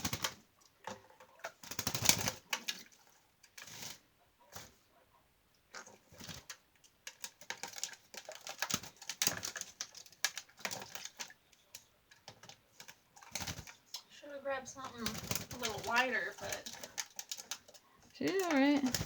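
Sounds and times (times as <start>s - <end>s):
bird splashing in water: 1.4s - 4.8s, 5.9s - 11.4s, 12.4s - 14.0s, 14.8s - 19.0s.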